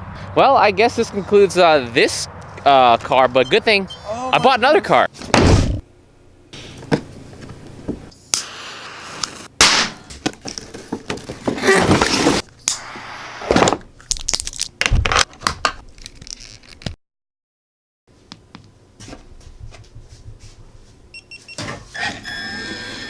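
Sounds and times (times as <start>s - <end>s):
packaging crackling and scraping: 15.9s - 17.0s.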